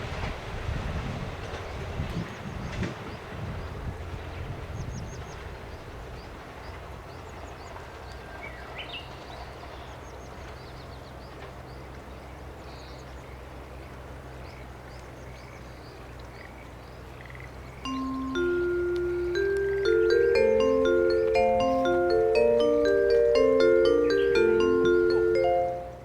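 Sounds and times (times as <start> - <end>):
faint background hiss: 12.1 - 26.0
birds chirping: 14.4 - 26.0
mallet percussion music: 17.8 - 26.0.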